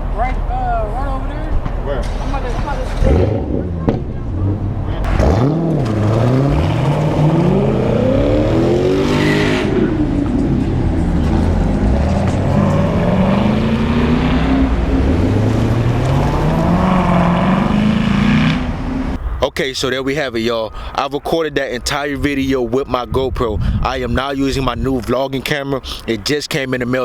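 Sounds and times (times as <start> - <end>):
car engine revving loudly: 2.9 - 19.2.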